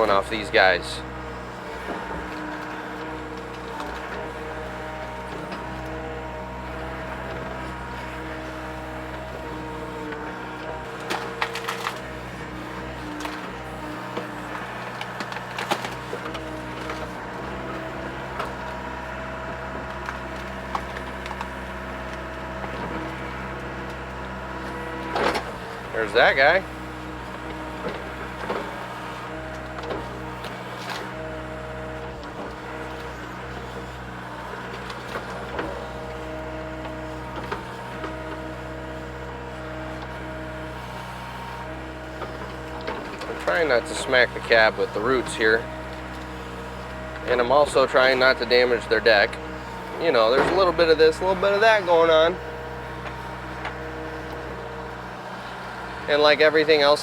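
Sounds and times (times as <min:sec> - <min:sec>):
excavator engine and hydraulics: 0:00.0 - 0:57.0.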